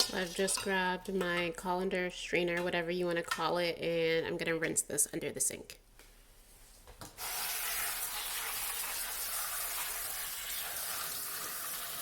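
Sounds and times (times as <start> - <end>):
tap water running: 7.2 - 12.0
water spraying onto spinach: 7.2 - 12.0.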